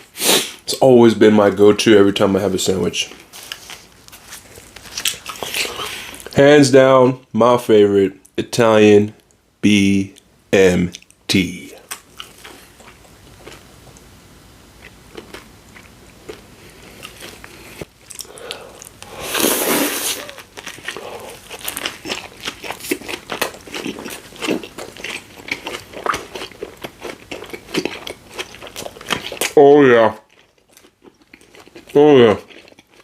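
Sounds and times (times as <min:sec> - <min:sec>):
chewing with mouth clicks: 0:11.8 - 0:14.1, 0:14.8 - 0:19.1, 0:20.2 - 0:29.6, 0:30.2 - 0:33.0.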